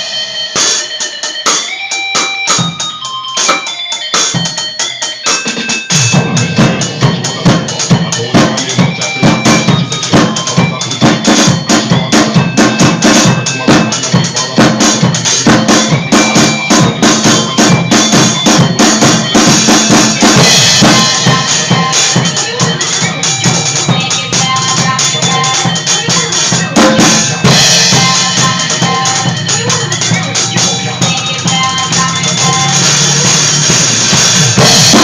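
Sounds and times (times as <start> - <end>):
drum kit played hard: 0.0 - 35.0
recorded song: 0.0 - 35.0.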